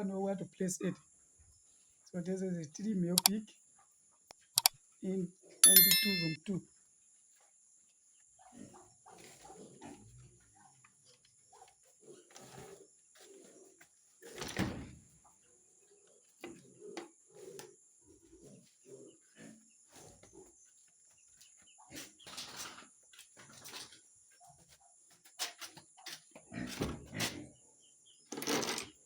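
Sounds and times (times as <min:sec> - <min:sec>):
pigs grunting: 0:16.5 - 0:20.4, 0:26.4 - 0:27.6.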